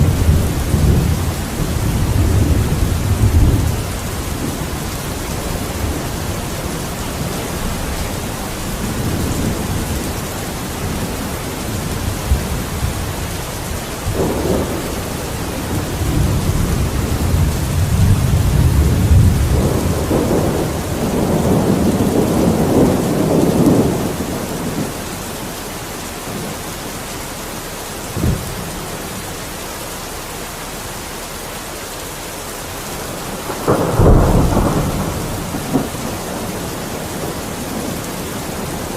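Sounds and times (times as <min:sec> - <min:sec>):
rolling thunder: 0:00.0 - 0:25.5, 0:28.1 - 0:29.2, 0:32.9 - 0:38.9
steady rain: 0:00.0 - 0:38.9
sharp thunder crack: 0:14.0 - 0:24.9, 0:33.3 - 0:38.9.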